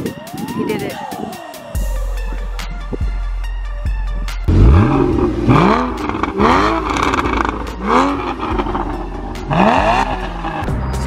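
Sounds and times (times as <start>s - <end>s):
car engine revving from idle: 4.5s - 10.7s.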